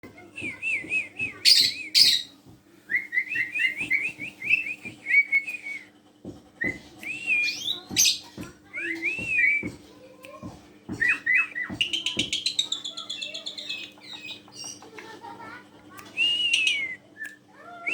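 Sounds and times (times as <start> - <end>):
starling whistling and chattering: 0.4 - 2.3, 6.6 - 9.7, 11.0 - 14.9, 16.2 - 17.0.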